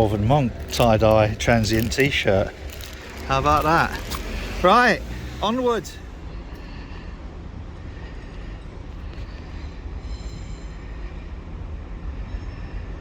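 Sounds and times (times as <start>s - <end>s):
low engine drone: 0.0s - 13.0s
faint high thin tones: 10.0s - 11.1s.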